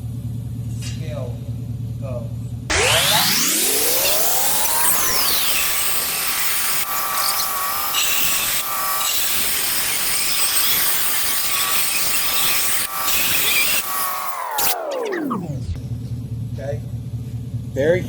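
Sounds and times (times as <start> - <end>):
power saw cutting tile: 2.7 - 15.8.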